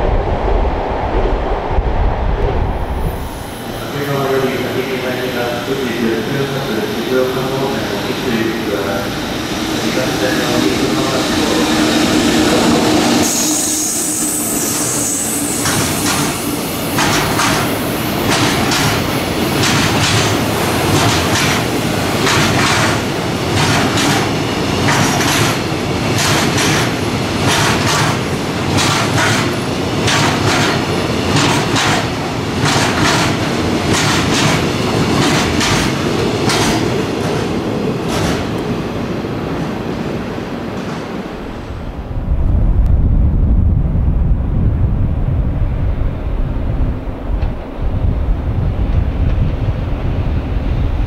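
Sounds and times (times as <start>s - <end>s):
freight train passing: 0.0s - 51.0s
wheels clacking over rail joints: 17.0s - 38.7s.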